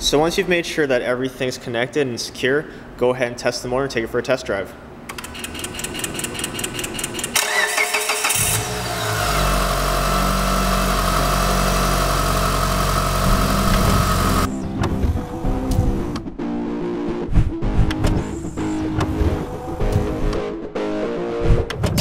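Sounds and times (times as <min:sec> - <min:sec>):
engine cranking and idling: 0:05.1 - 0:14.5
high whine: 0:08.5 - 0:16.3.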